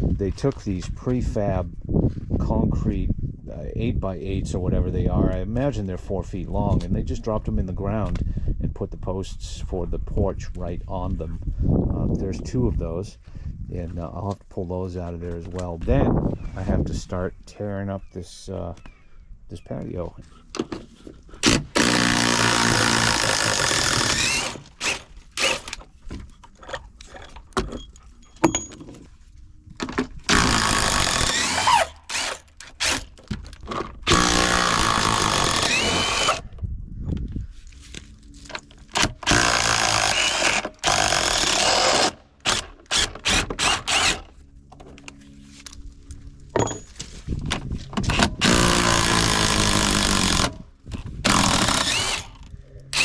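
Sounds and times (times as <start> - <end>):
power drill running in bursts: 21.7 - 25.6, 30.3 - 33.0, 34.1 - 36.4, 39.3 - 44.3, 48.1 - 50.5, 51.2 - 52.4.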